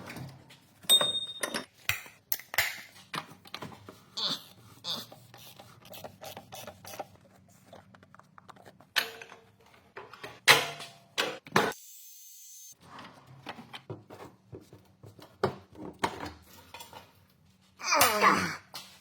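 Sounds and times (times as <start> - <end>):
hand tools and metal parts clinking: 0.0 - 3.7.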